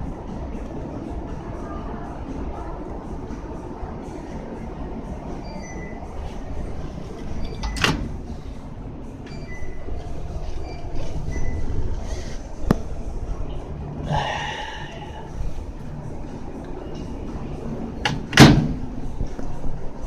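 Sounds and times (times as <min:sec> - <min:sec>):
steady low rumble: 0:00.0 - 0:20.0
faint short beeps: 0:05.4 - 0:06.1, 0:09.3 - 0:11.8.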